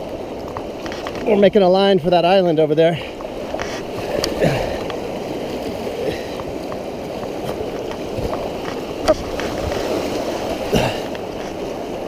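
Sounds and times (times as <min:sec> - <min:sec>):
river water rushing: 0:00.0 - 0:12.0
faint paddle splashes: 0:03.0 - 0:12.0.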